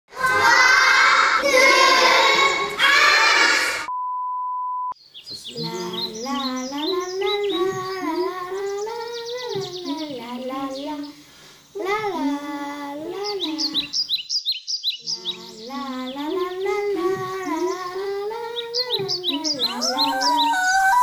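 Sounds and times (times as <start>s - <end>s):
children shouting: 0.1s - 3.9s, 19.6s - 21.0s
child singing a slow tune: 5.5s - 11.2s, 11.8s - 13.8s, 15.1s - 21.0s
countdown voices: 19.6s - 21.0s.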